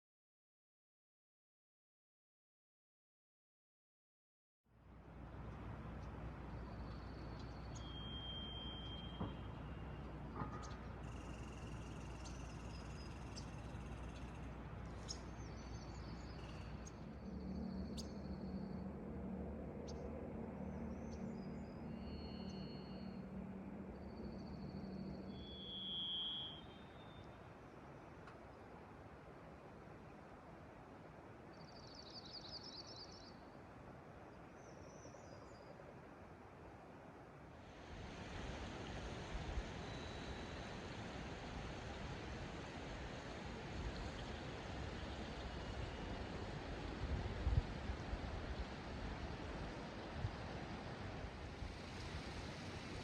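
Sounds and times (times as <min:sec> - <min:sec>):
faint outdoor hiss: 0:04.8 - 0:53.0
low hum: 0:05.0 - 0:25.9
songbird trilling: 0:07.3 - 0:10.0, 0:25.3 - 0:27.3
high bird calls: 0:25.1 - 0:27.3.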